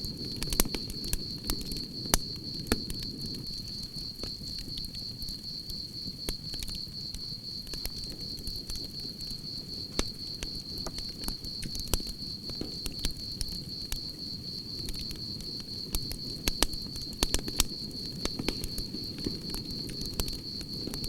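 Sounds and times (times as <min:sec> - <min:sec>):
campfire crackling and popping: 0:00.0 - 0:21.0
crickets chirping: 0:00.0 - 0:21.0
low rumble of flames: 0:00.0 - 0:21.0.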